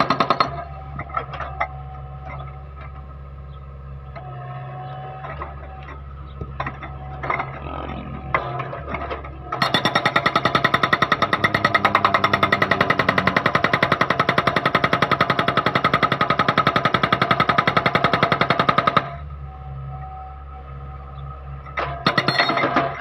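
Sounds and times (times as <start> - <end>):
engine hum: 0.0 - 23.0
hydraulic breaker hammering: 8.2 - 19.2, 21.8 - 23.0.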